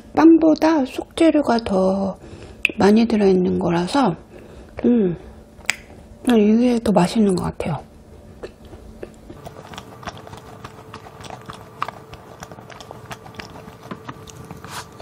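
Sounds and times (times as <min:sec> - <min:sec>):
wet mouth clicks: 0:05.6 - 0:06.0
close-miked chewing: 0:08.4 - 0:15.0.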